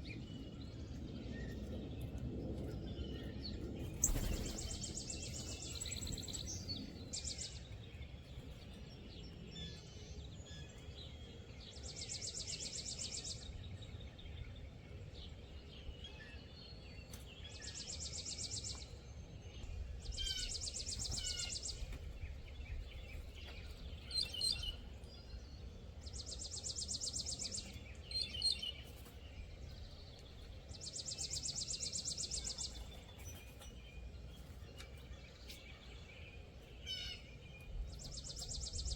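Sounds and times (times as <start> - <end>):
bird chirps: 3.8 - 7.9, 19.6 - 38.9.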